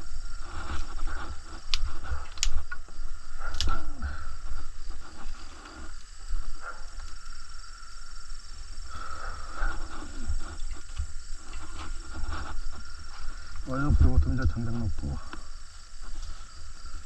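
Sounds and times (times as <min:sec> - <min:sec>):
low fire rumble: 0:00.0 - 0:17.0
twigs popping in fire: 0:00.7 - 0:03.9.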